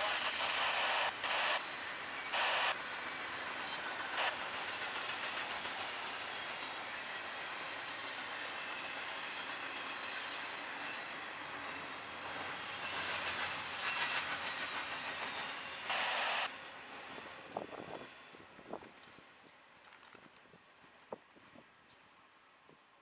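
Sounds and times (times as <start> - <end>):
loud rush of noise: 0.0 - 1.6, 2.3 - 2.8, 15.9 - 16.5
train wheels rumbling on rail: 0.0 - 21.7.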